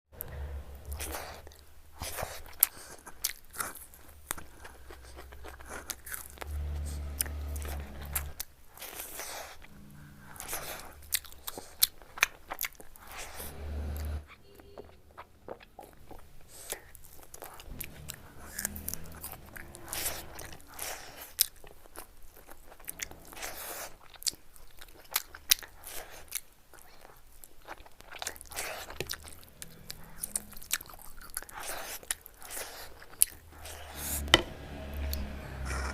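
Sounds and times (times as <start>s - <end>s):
low rumble: 0.2s - 2.0s, 4.2s - 8.5s, 9.6s - 11.4s, 17.3s - 23.9s, 28.6s - 31.6s, 33.4s - 35.9s
person chewing with crunches: 0.8s - 13.5s, 14.8s - 34.2s.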